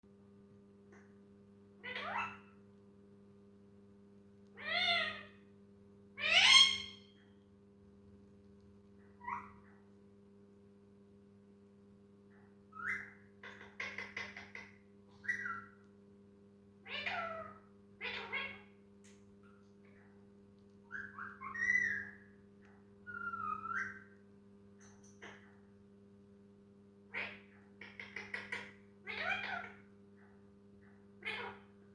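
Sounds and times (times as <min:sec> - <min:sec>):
parrot calling: 0:01.8 - 0:02.6, 0:04.6 - 0:05.4, 0:06.2 - 0:07.0, 0:09.2 - 0:09.7, 0:12.7 - 0:15.8, 0:16.8 - 0:18.8, 0:20.9 - 0:22.3, 0:23.0 - 0:24.2, 0:27.1 - 0:29.8, 0:31.2 - 0:31.7.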